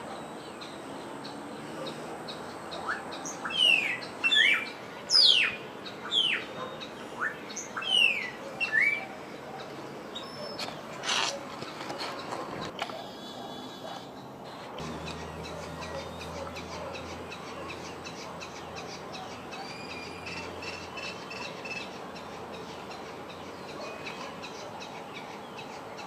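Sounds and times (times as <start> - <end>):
steady background hiss: 0.0 - 11.7.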